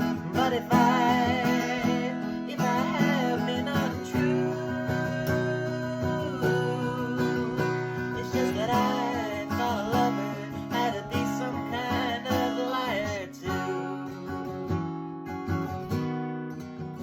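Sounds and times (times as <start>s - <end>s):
person singing long notes: 0.0s - 13.6s
strummed acoustic guitar: 0.0s - 17.0s.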